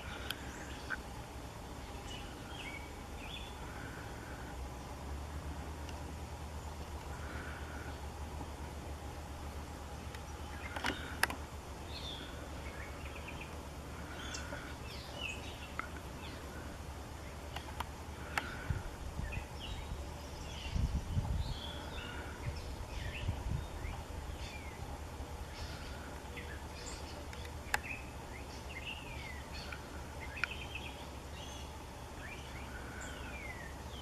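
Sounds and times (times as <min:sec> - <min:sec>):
low background hum: 0:00.0 - 0:34.0
songbirds chirping: 0:00.0 - 0:34.0
sharp clicks: 0:10.0 - 0:11.5, 0:17.5 - 0:18.6, 0:27.3 - 0:27.9.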